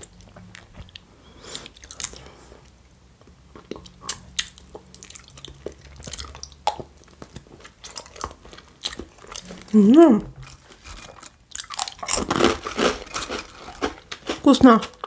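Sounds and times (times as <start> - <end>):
chewing and wet mouth smacks: 0.0 - 2.2, 3.2 - 9.7.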